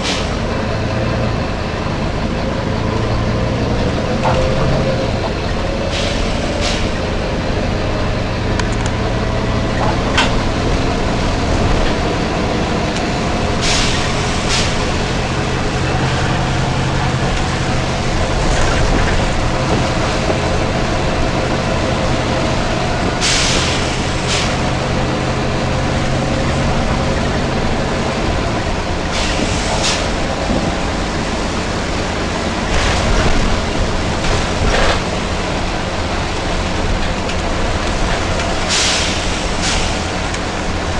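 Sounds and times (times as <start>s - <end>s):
bus diesel engine running: 0.0s - 40.9s
compressed air hisses: 13.6s - 15.0s, 23.2s - 24.6s, 38.7s - 40.0s.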